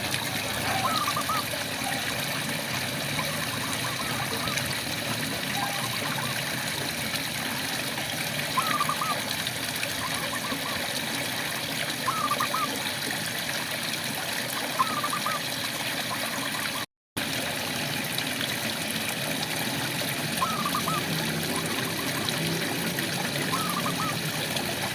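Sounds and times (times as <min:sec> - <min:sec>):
frog calling: 0:00.6 - 0:02.1, 0:03.2 - 0:04.6, 0:08.6 - 0:09.3, 0:12.1 - 0:12.8, 0:14.7 - 0:15.5, 0:20.4 - 0:22.4, 0:23.5 - 0:24.3.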